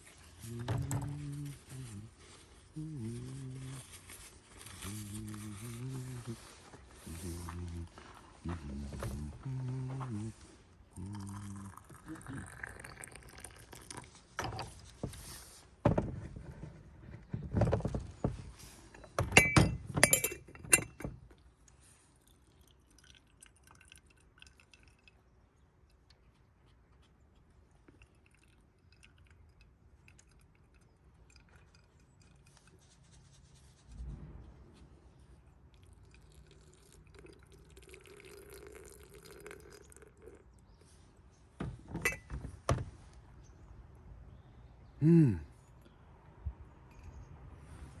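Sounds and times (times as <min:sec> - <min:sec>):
glass teaware clinking: 0:19.0 - 0:21.1, 0:41.9 - 0:42.4.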